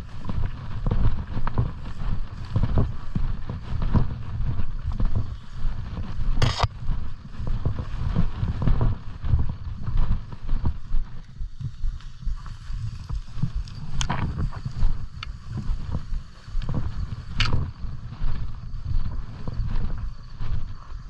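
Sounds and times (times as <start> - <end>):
footsteps through brush: 0.0 - 21.0
camera jostling thumps: 6.0 - 7.0, 11.4 - 17.7.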